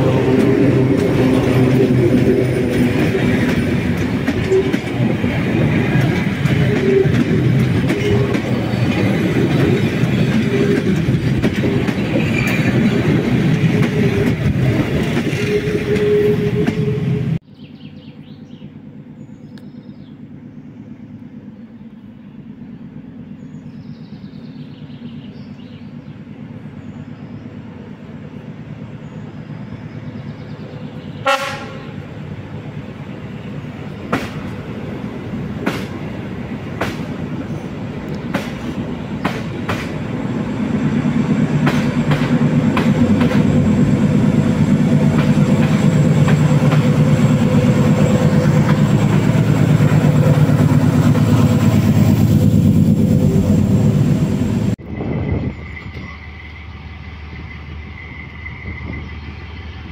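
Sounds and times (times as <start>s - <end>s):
wheels clicking on rails: 0.0s - 17.0s, 33.8s - 53.2s
diesel engines running: 0.0s - 59.9s
train horn blast: 15.2s - 17.4s, 31.2s - 32.2s.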